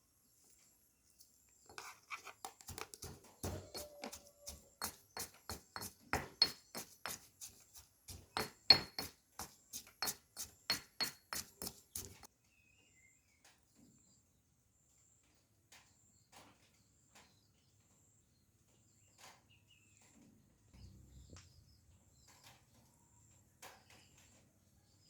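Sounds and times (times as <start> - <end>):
knife chopping on cutting board: 2.6 - 12.3.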